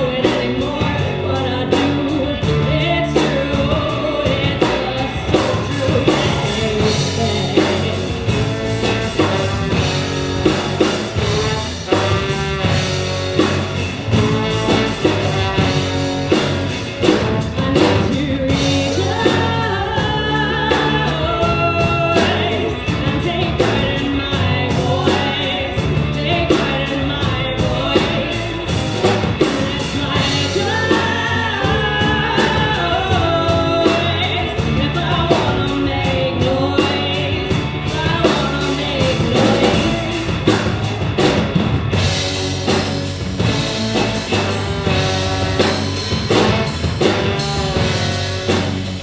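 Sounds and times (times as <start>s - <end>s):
person singing lead vocal: 0.0s - 49.0s
sustained bass: 0.0s - 49.0s
drum beat: 1.8s - 49.0s.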